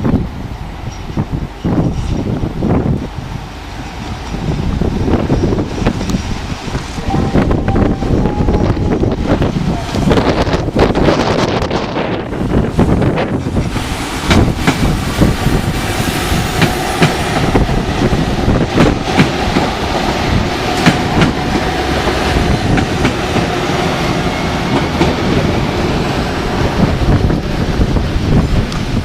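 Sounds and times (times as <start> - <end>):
train rolling rumble: 0.0 - 29.0
train wheels clattering over rail joints: 9.9 - 25.6.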